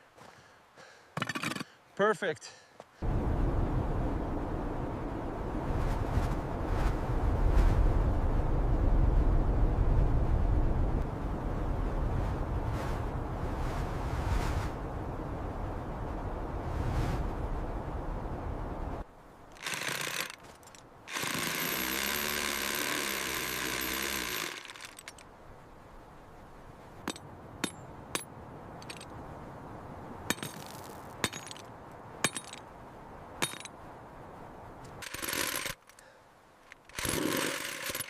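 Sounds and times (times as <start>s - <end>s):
hammering power tool: 21.1s - 24.8s.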